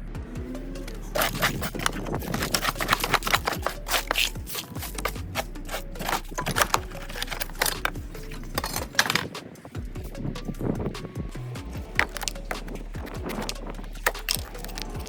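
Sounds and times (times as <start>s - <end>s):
hand tool clicking on wood: 1.1s - 9.4s, 11.8s - 15.0s.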